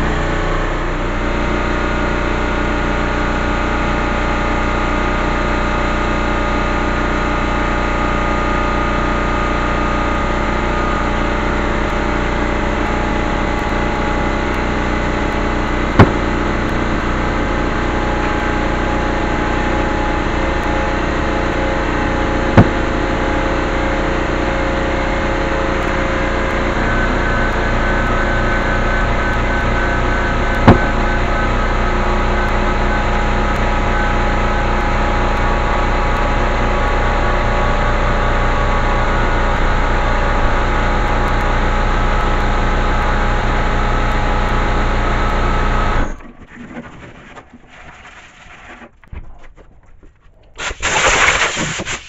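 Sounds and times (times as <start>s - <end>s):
electric sander running: 9.1s - 46.2s
sharp knocks: 16.0s - 16.9s, 22.5s - 23.2s, 30.6s - 31.1s.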